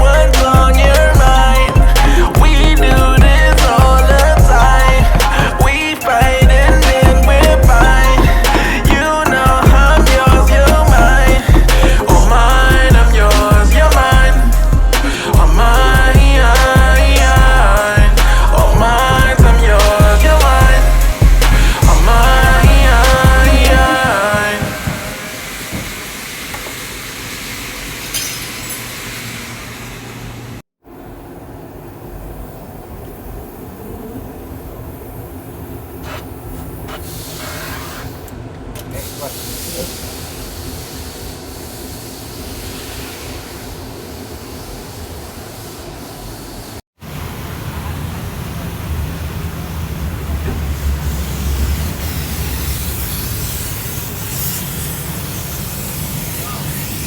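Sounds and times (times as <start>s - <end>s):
compressed air hissing: 0.0s - 30.6s, 34.9s - 38.3s, 38.9s - 46.8s, 51.0s - 57.0s
workshop machinery rumble: 0.0s - 30.6s.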